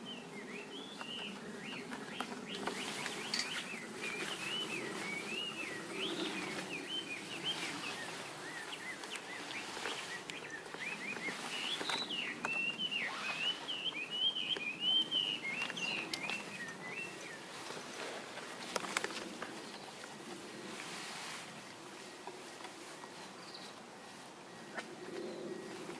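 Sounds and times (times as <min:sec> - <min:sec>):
songbird warbling: 0:00.1 - 0:17.5.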